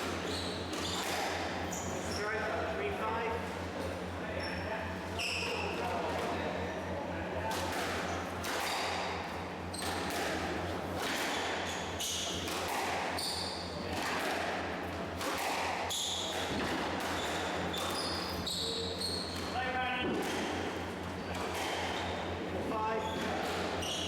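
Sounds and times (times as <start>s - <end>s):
shoes squeaking on court floor: 0.2s - 2.5s, 3.8s - 5.9s, 11.3s - 13.8s, 15.4s - 19.7s, 21.0s - 22.3s, 22.9s - 24.0s
squash ball struck by rackets: 9.8s - 18.0s, 19.4s - 22.0s.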